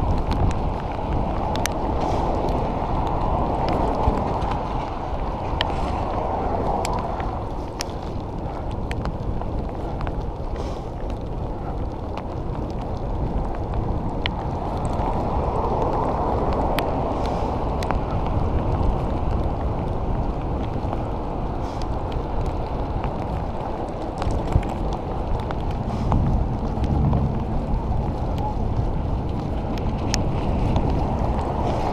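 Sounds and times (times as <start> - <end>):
wind over microphone: 0.0 - 31.9
tyres hissing on wet road: 1.0 - 8.2, 10.5 - 11.2, 14.8 - 24.1, 25.7 - 31.9.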